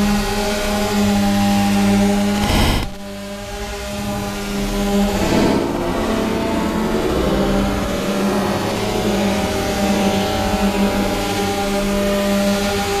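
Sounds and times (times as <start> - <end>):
drone propellers humming: 0.0 - 13.0.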